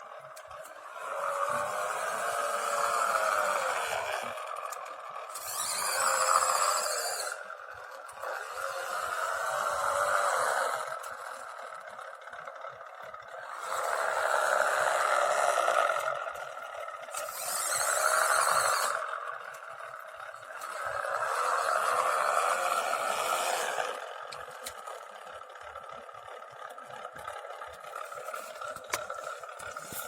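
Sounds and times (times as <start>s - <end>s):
simulated engine revving from small speaker: 0.8s - 11.8s, 13.3s - 19.6s, 20.4s - 25.2s.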